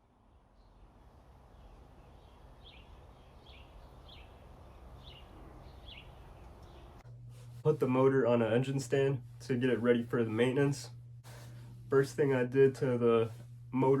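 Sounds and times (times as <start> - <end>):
low hum: 0.0 - 14.0
small bird chirping: 0.4 - 7.0.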